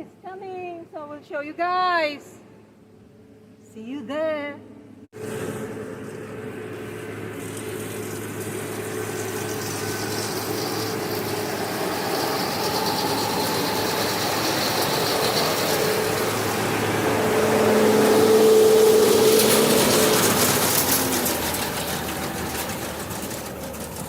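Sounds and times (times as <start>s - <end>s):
diesel tractor engine running: 5.2s - 24.0s.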